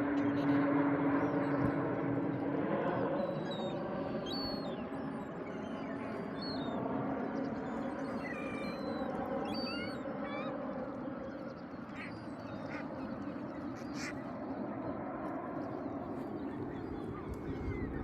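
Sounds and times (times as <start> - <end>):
small birds chirping: 3.2 - 15.0, 15.6 - 18.0
waterbirds chattering: 3.2 - 18.0.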